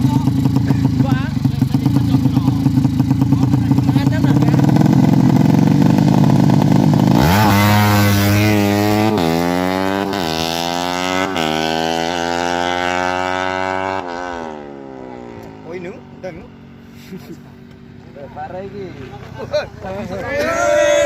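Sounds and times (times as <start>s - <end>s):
motorcycle engine revving through gears: 0.0s - 16.8s.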